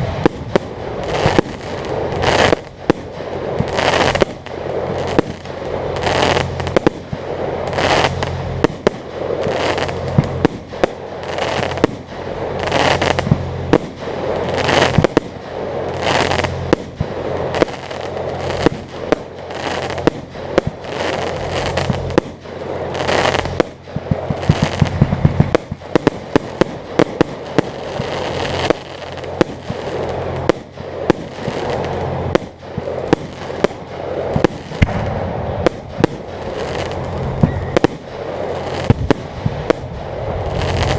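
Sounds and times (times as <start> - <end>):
fireworks booming and crackling: 0.0 - 40.9.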